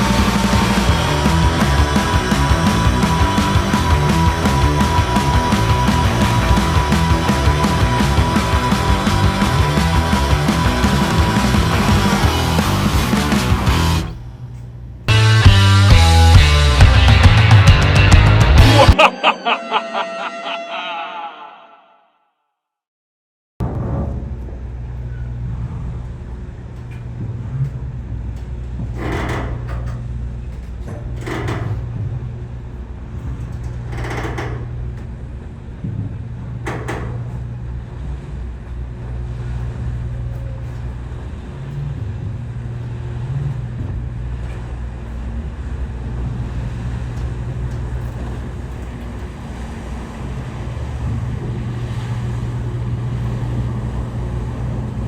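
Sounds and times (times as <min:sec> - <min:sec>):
ferry engines droning: 0:00.0 - 0:21.6, 0:23.7 - 0:55.0
short higher sounds: 0:18.6 - 0:22.2.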